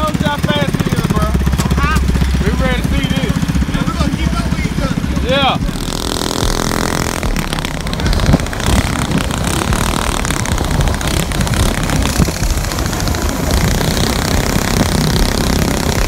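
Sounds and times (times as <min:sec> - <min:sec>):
small bike engines running: 0:00.0 - 0:16.0
wind rush on microphone: 0:00.0 - 0:16.0.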